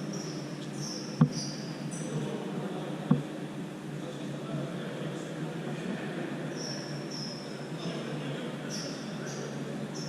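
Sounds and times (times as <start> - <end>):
sports hall hum: 0.0 - 10.0
sneakers squeaking on floor: 0.1 - 1.7
ball being struck: 1.2 - 1.4.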